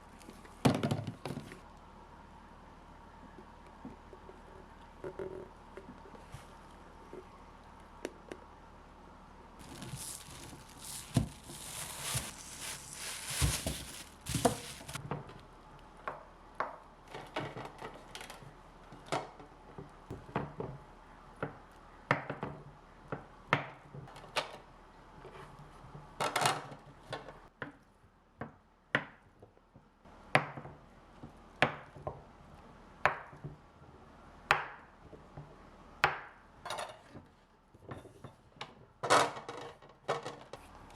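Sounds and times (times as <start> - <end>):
rustling: 9.6 - 15.0.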